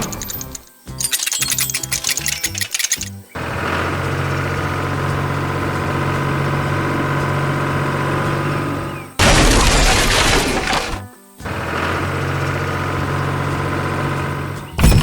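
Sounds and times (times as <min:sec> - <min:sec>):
heavy vehicle engine running: 0:03.4 - 0:15.0
loud crash: 0:09.2 - 0:11.0.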